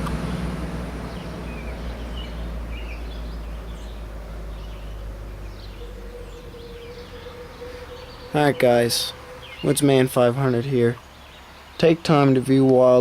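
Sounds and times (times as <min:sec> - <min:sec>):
low rumble: 0:00.0 - 0:09.7
steady hum: 0:00.0 - 0:11.6
small birds chirping: 0:00.0 - 0:13.0.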